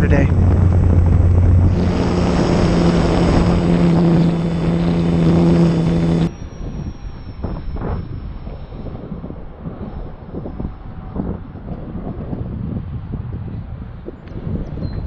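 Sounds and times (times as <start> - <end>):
model airplane motor droning: 0.0 - 11.8
wind buffeting microphone: 0.0 - 15.0.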